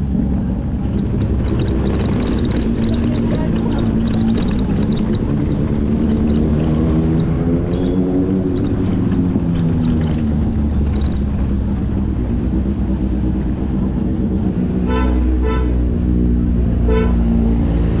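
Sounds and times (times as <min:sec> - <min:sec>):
motorcycle engine running: 0:00.0 - 0:18.0
vehicle horn honking: 0:14.8 - 0:15.9, 0:16.8 - 0:17.4.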